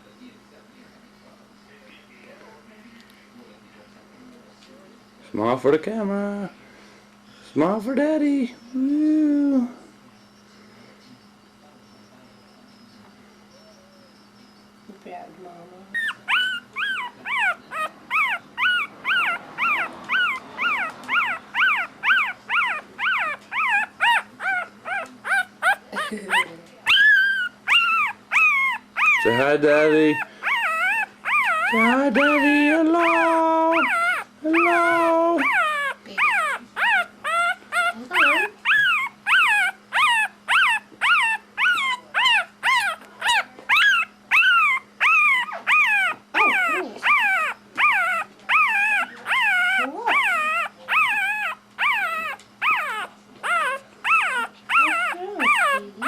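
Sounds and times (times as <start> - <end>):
puppy whining and crying: 15.9 - 56.0.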